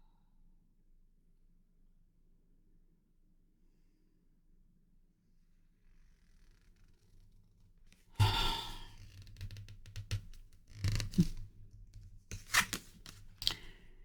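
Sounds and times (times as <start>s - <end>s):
cards scraping on table: 8.2s - 11.5s, 12.3s - 13.8s
cards rustling: 12.3s - 13.8s.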